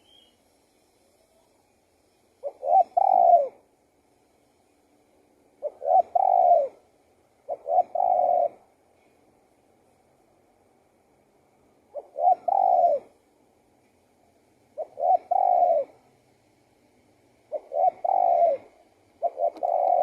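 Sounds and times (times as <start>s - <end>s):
dove cooing: 2.4s - 3.7s, 5.5s - 8.7s, 11.9s - 13.2s, 14.7s - 16.1s, 17.4s - 20.0s.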